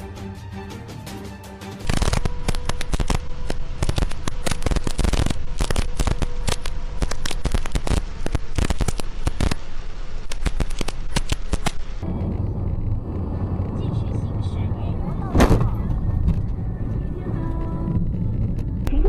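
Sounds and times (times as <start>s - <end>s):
heavy rain on a vehicle: 3.5s - 12.6s.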